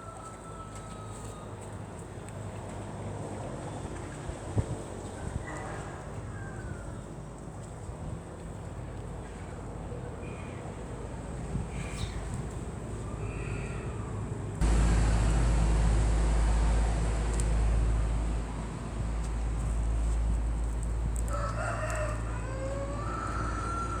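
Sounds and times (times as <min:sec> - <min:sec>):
rooster crowing: 0:00.0 - 0:01.6, 0:05.2 - 0:07.1, 0:21.2 - 0:24.0
steady low rumble: 0:14.4 - 0:23.4.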